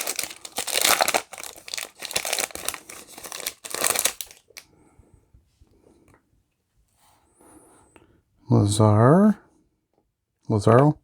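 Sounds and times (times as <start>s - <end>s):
foil wrapper crackling: 0.0s - 4.6s.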